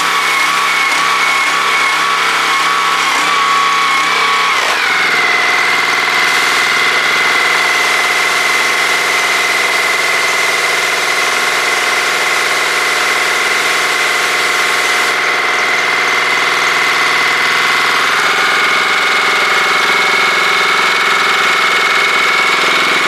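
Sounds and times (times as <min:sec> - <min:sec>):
power sprayer engine whining: 0:00.0 - 0:23.0.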